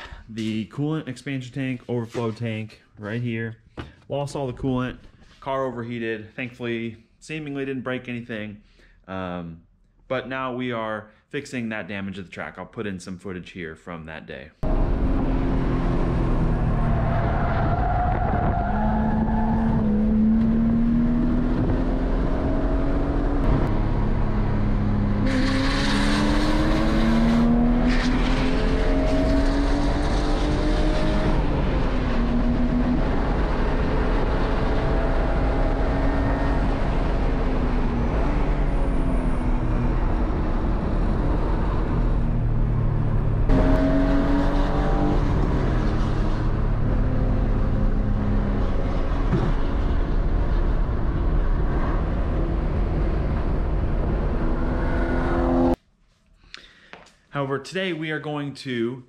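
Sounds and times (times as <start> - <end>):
car engine revving: 14.6 - 55.8.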